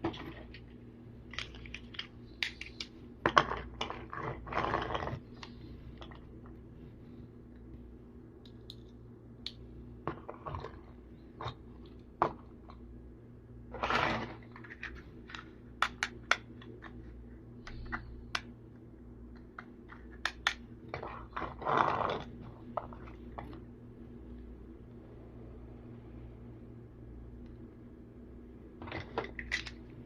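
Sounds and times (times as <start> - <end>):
steady low hum: 0.0 - 30.0
plastic toy clicks and knocks: 14.2 - 16.5, 28.8 - 29.8.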